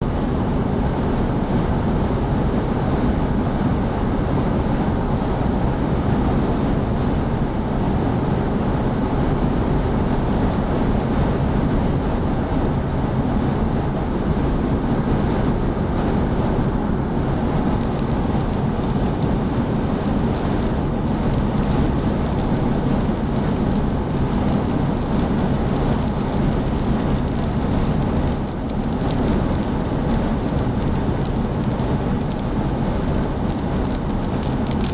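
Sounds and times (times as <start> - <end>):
vehicle road and engine noise: 0.0 - 34.9
wind buffeting microphone: 0.0 - 34.9
faint clicks: 17.8 - 34.9.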